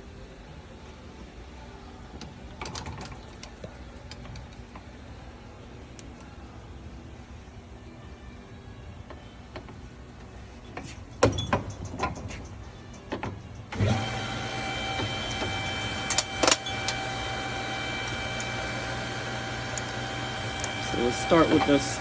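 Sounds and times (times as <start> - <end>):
tools and metal clicking: 10.6 - 13.8, 16.1 - 17.0
small electric motor running: 13.8 - 22.0.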